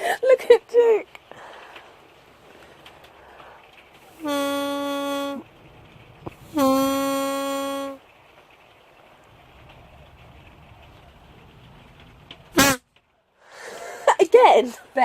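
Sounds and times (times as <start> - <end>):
buzzing novelty horn blasts: 4.2 - 5.5, 6.4 - 8.0, 12.5 - 12.9.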